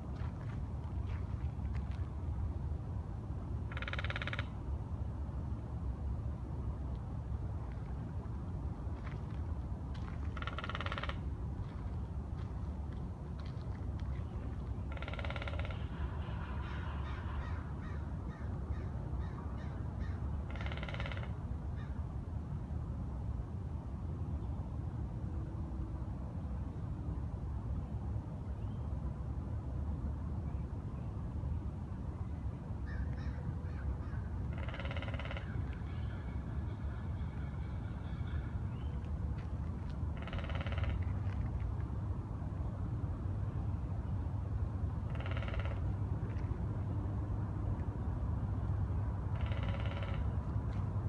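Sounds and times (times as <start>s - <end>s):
steady low rumble: 4.6s - 18.8s.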